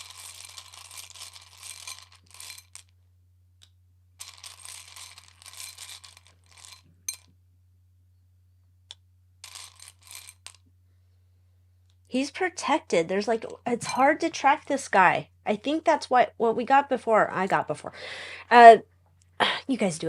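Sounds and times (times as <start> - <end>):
cards shuffling: 0.0 - 2.9, 4.2 - 6.8, 9.4 - 10.6.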